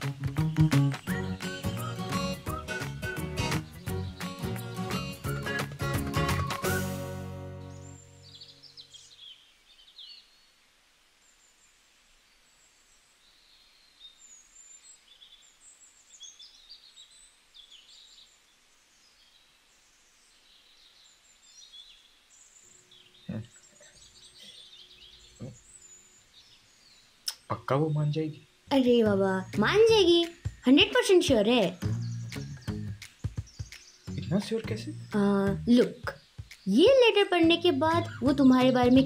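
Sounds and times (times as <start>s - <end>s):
background music: 0.0s - 8.7s, 28.7s - 39.0s
small birds chirping: 0.0s - 39.0s.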